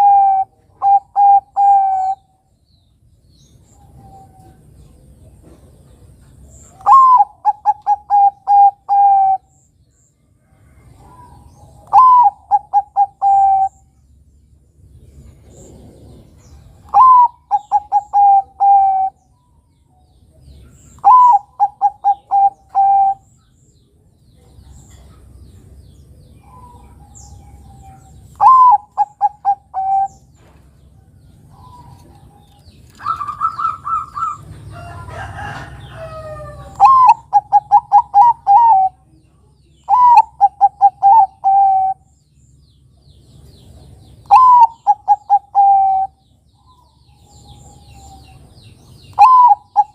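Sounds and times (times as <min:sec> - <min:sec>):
dove cooing: 0:00.0 - 0:02.3, 0:06.7 - 0:09.5, 0:11.0 - 0:13.8, 0:15.5 - 0:19.2, 0:21.0 - 0:23.3, 0:26.4 - 0:30.3, 0:31.5 - 0:39.1, 0:39.8 - 0:42.1, 0:44.2 - 0:48.4, 0:49.1 - 0:49.9
mixed bird chirping: 0:00.0 - 0:49.9.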